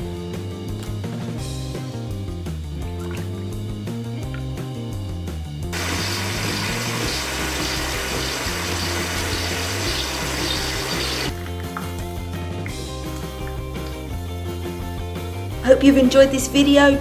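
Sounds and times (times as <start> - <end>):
background music: 0.0 - 17.0
coffee machine pump buzzing: 5.8 - 11.4.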